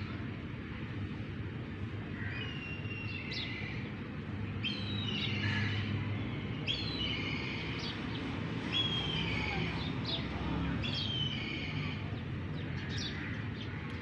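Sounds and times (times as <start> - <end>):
small birds chirping and whistling: 4.6 - 5.6, 6.5 - 12.0.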